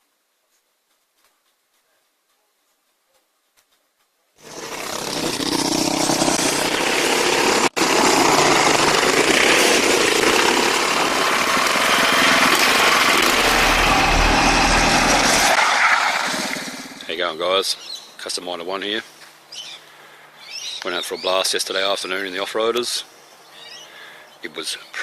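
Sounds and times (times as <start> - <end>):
buggy engine running hard: 4.4 - 17.0.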